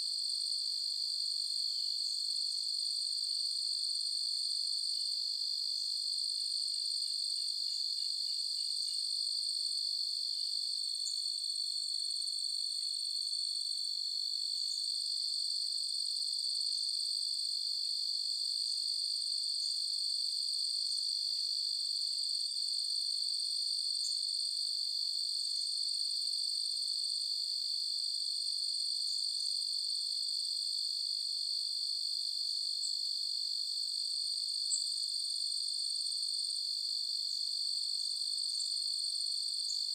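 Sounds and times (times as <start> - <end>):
crickets trilling: 39.7 - 39.9.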